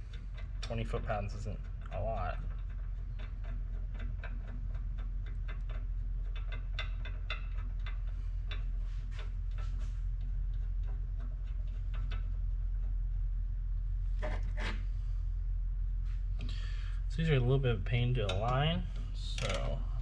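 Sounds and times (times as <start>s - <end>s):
hand ratchet clicking: 0.0s - 13.0s, 18.1s - 20.0s
steady low hum: 0.0s - 20.0s.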